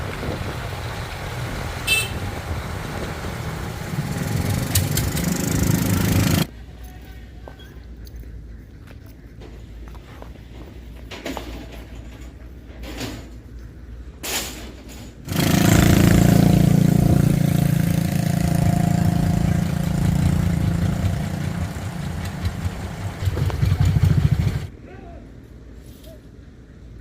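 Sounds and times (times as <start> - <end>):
engine idling: 0.0 - 6.5, 15.3 - 24.7.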